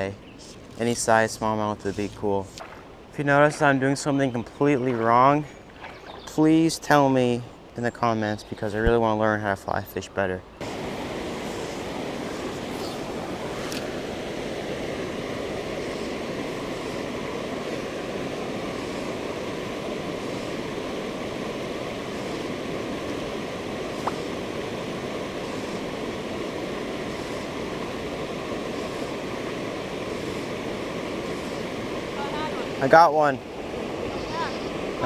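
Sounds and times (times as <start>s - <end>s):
creek water rushing over rocks: 10.6s - 35.0s.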